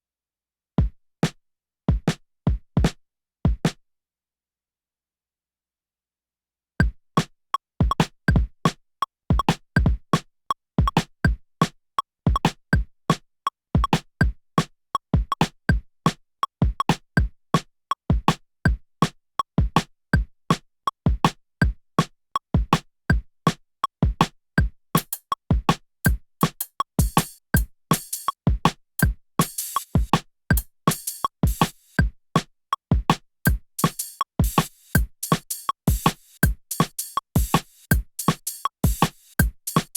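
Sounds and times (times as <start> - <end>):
hi-hat hits: 25.0 - 25.3, 26.1 - 28.4, 29.0 - 32.0, 33.5 - 39.9.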